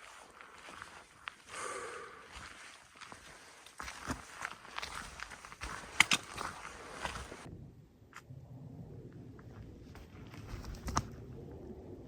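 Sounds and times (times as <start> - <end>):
footsteps on trail: 0.0 - 7.5, 9.9 - 11.1.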